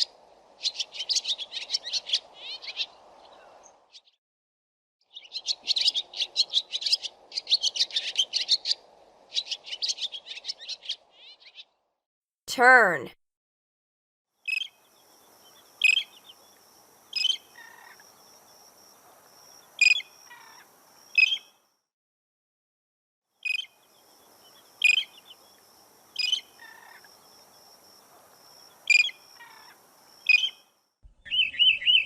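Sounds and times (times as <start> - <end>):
faint steady hiss: 14.7 - 21.2, 23.7 - 30.7.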